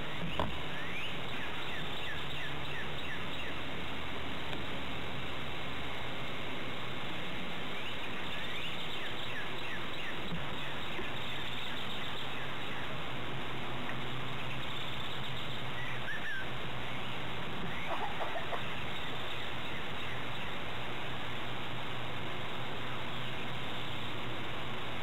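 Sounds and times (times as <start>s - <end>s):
faint bird chirps: 0.0s - 3.6s, 7.7s - 13.0s, 14.0s - 20.7s
outdoor background hiss: 0.0s - 25.0s.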